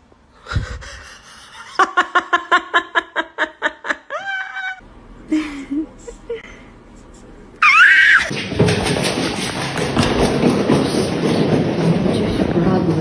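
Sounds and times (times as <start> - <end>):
person laughing hard: 0.4 - 6.6.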